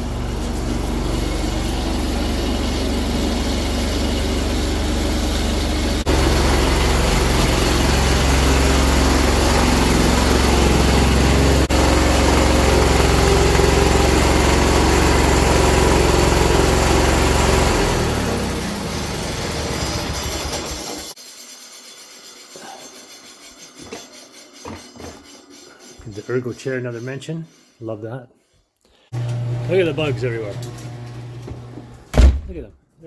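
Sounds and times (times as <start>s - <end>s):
garden tractor engine running: 0.0s - 21.2s, 29.2s - 32.0s.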